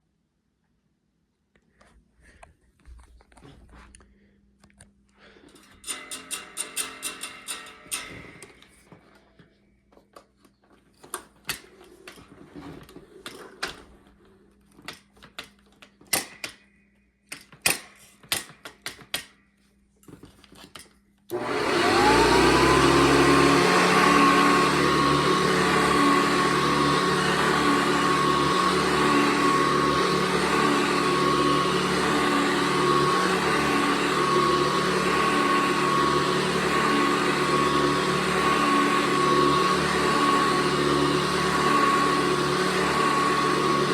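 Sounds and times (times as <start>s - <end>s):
vacuum cleaner running: 21.3s - 43.9s.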